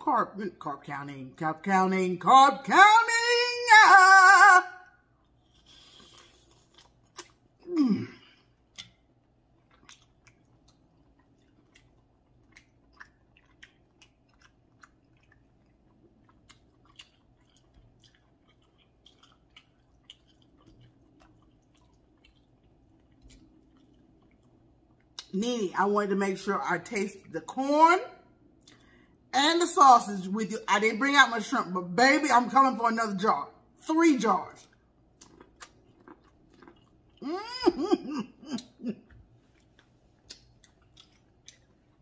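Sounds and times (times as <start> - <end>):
close chewing and mouth clicks: 5.1 - 7.7, 8.3 - 25.4, 28.5 - 29.2, 34.6 - 37.7, 38.6 - 42.0
person humming: 37.2 - 38.9.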